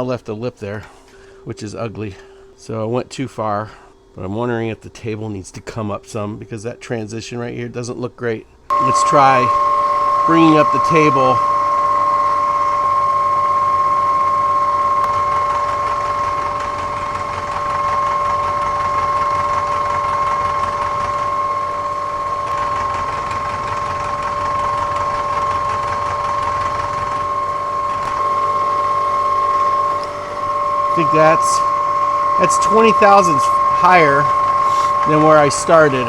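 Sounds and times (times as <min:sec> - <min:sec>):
metal shaper mechanical whine: 0:08.7 - 0:36.0
ram and feed mechanism working: 0:08.7 - 0:36.0.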